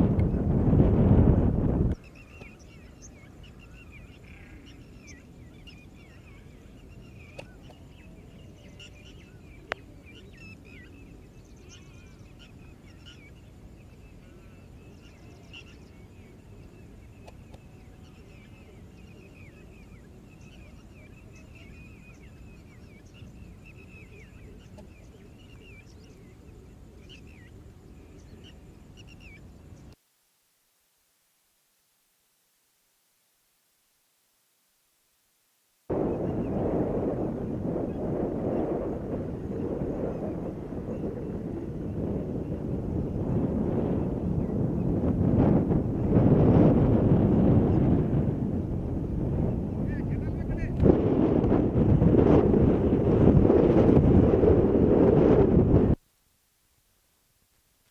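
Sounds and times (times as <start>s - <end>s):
low outdoor background hum: 0.0s - 57.9s
small birds chirping: 1.9s - 30.0s.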